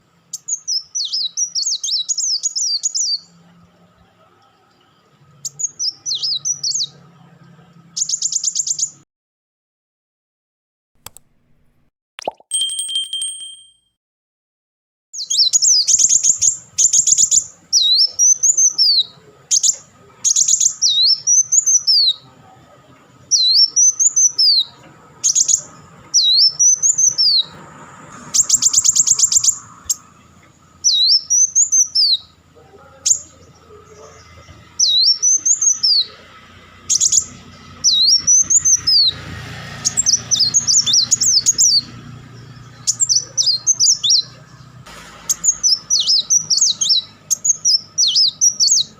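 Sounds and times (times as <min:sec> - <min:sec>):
bird whistled notes: 0:28.2 - 0:30.0, 0:45.2 - 0:48.9.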